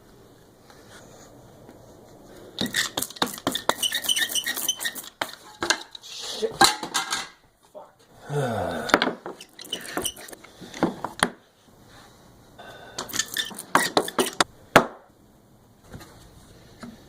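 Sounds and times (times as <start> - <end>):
hard objects clinking and knocking: 2.6 - 6.0, 13.0 - 14.5.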